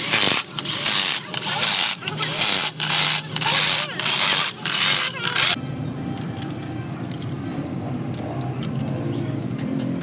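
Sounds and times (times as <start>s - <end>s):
hand tool scraping metal: 0.0s - 5.6s.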